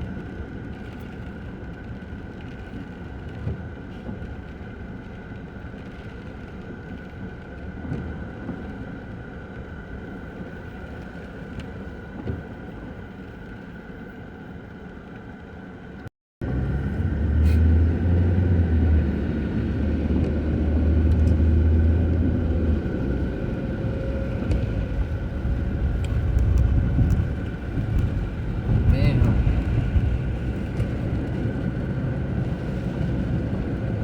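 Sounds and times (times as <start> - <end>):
vehicle road noise: 16.4 - 34.0.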